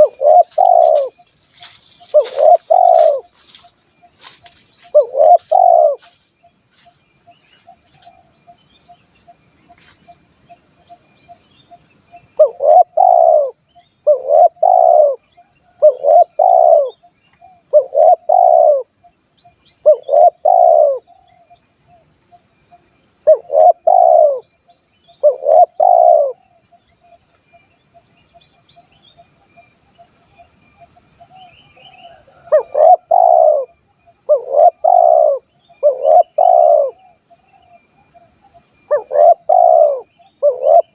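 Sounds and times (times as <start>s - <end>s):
dove cooing: 0.0s - 3.4s, 4.9s - 6.1s, 12.4s - 18.9s, 19.8s - 21.4s, 23.3s - 24.5s, 25.2s - 26.5s, 31.4s - 37.2s, 38.8s - 40.9s.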